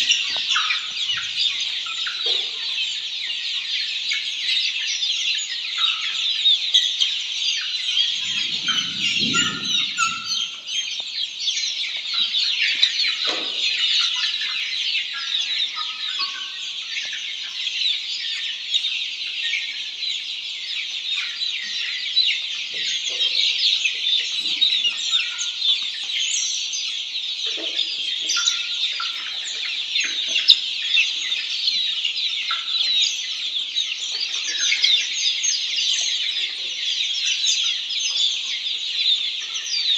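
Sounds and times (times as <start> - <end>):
chicken clucks: 0.0 - 39.9
chickens peeping: 0.0 - 39.9
low rumble: 8.1 - 10.6.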